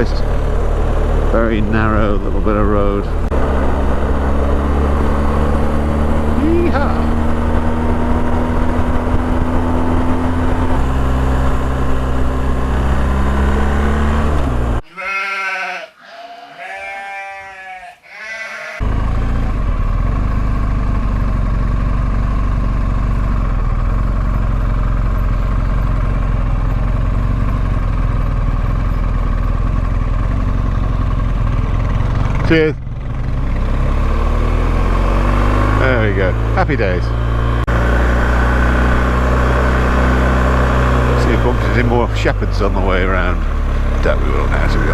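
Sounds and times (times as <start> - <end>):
motorcycle engine running: 0.0 - 14.8, 18.7 - 44.9
sheep bleating: 14.8 - 18.9.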